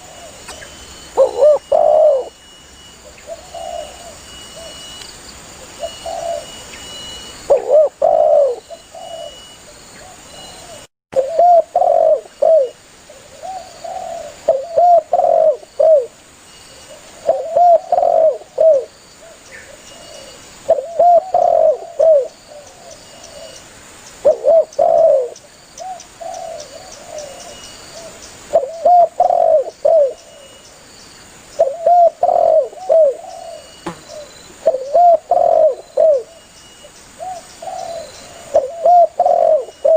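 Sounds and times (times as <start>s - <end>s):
dove cooing: 0.0s - 2.4s, 3.0s - 4.8s, 5.7s - 6.6s, 7.5s - 16.1s, 16.8s - 23.6s, 24.2s - 30.5s, 31.6s - 36.4s, 37.2s - 39.9s.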